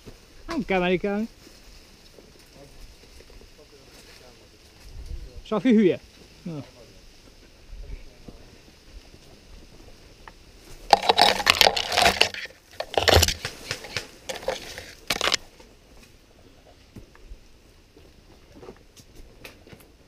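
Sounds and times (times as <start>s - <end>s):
loud crunching and rustling: 10.6s - 15.7s.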